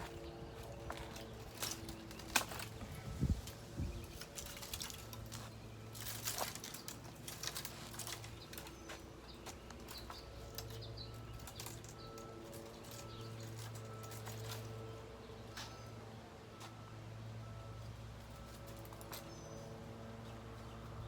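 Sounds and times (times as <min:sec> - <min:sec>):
branches rustling and cracking: 0:00.0 - 0:16.0
branches snapping: 0:00.9 - 0:09.0.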